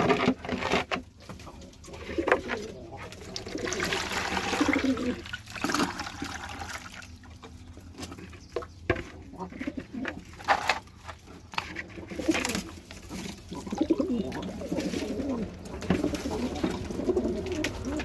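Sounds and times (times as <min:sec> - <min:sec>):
pigeons cooing: 0:00.0 - 0:06.3, 0:07.5 - 0:10.7, 0:11.3 - 0:18.0.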